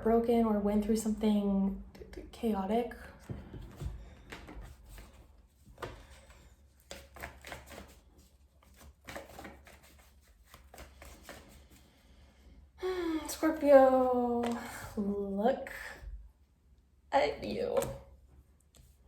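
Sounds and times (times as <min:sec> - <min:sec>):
cards clicking and slapping: 0:03.3 - 0:11.8, 0:14.4 - 0:14.7.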